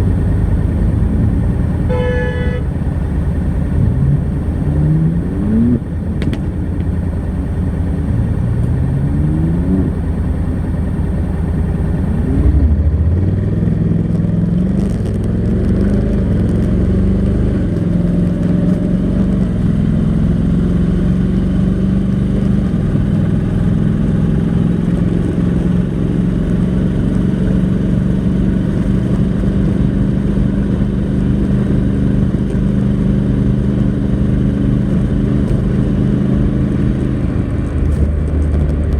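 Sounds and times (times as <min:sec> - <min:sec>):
gear upshift: 0:00.0 - 0:12.7
motorcycle engine accelerating: 0:00.0 - 0:38.9.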